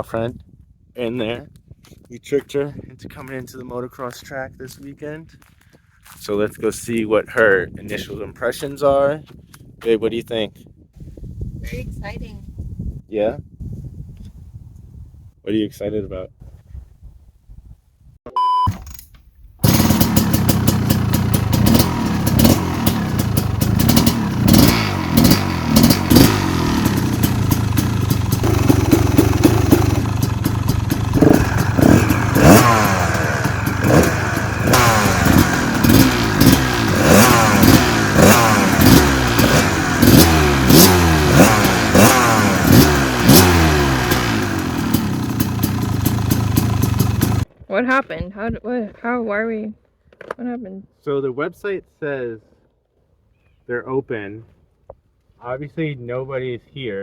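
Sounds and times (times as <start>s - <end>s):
dirt bike engine revving: 19.6s - 47.4s.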